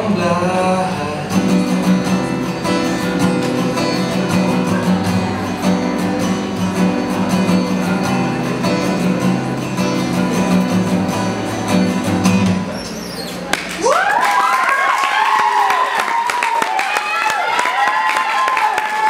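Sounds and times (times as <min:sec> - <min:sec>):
acoustic guitar strumming: 0:00.0 - 0:13.5.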